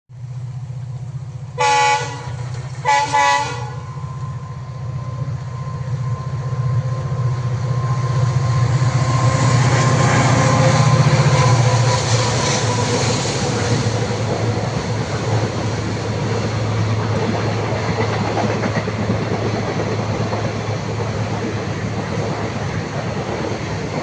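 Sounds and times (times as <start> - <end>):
train rumbling: 0.1 - 24.0
train horn blasts: 1.6 - 4.3.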